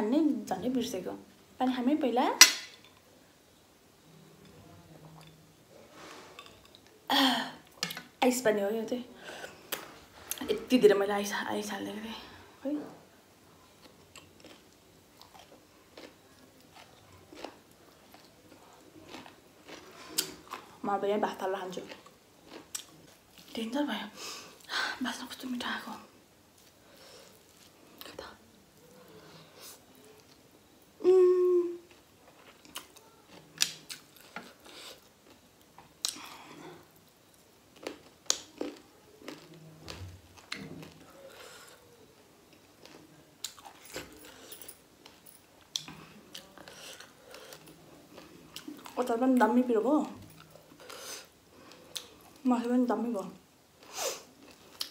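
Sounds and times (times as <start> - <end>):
chewing raw carrot crunches: 13.8 - 20.8, 37.8 - 41.0
person chewing: 13.8 - 20.8, 21.8 - 23.5, 26.6 - 28.3, 31.9 - 36.8, 37.7 - 41.9, 42.5 - 49.0, 50.4 - 52.4
person humming: 31.0 - 31.9.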